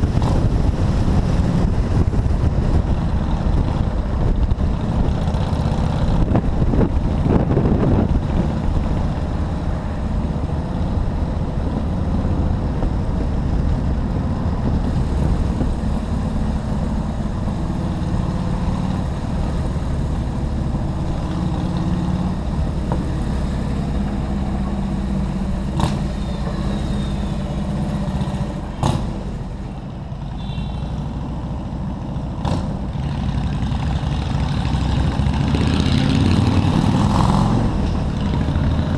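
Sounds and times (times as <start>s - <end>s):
road noise: 0.0s - 38.9s.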